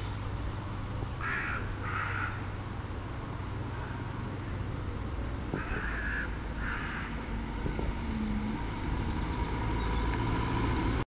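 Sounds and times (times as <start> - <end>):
steady low rumble: 0.0 - 9.9
harsh bird calls: 5.5 - 10.8.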